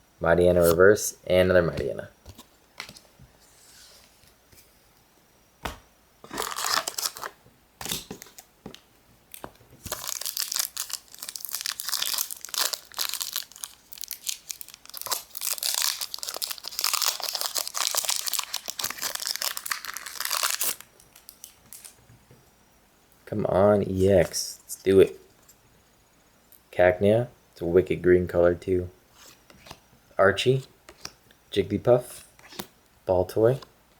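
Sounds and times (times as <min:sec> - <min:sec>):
foil wrapper crinkling and tearing: 0:06.3 - 0:08.5, 0:09.3 - 0:22.0.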